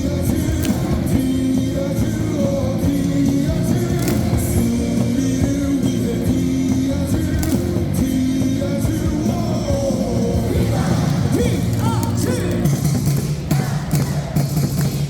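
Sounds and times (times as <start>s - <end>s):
crowd claps: 0.0s - 1.4s, 2.8s - 5.3s, 7.2s - 8.0s, 10.6s - 15.0s
amplified cheer music: 0.0s - 15.0s
stadium crowd singing: 0.0s - 15.0s.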